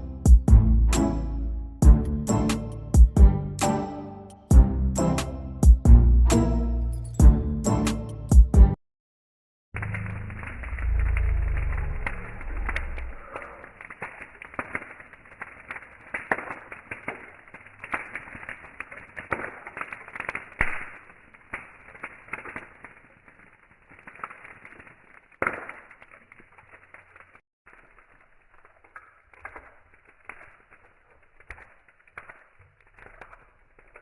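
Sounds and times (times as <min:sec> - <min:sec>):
campfire crackling and popping: 0:09.8 - 0:34.0.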